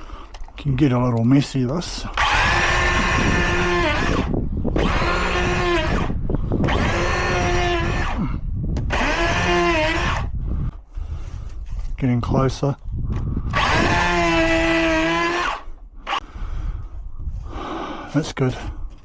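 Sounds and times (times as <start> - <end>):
electric hand plane shaving wood: 2.2 - 8.3, 8.9 - 10.3, 13.6 - 16.2.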